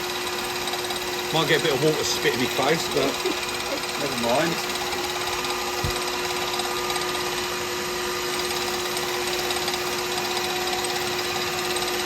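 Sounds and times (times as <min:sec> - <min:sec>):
wet-sanding spinning workpiece: 0:00.0 - 0:07.3, 0:08.3 - 0:12.0
lathe humming: 0:00.0 - 0:12.0.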